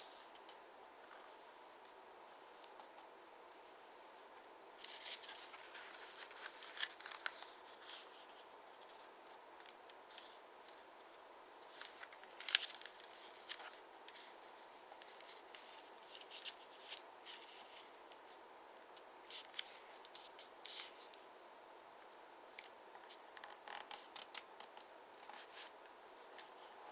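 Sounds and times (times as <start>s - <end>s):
paper crinkling while folded: 4.8s - 10.8s, 11.6s - 18.2s, 22.6s - 26.9s.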